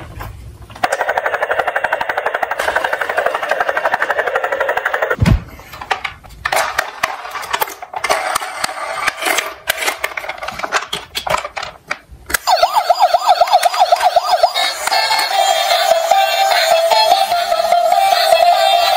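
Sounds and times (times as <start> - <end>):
toy cars rattling down slope: 0.8 - 5.2
toy electronic siren warbling: 0.8 - 5.2, 12.4 - 16.7
thump: 5.2 - 5.5.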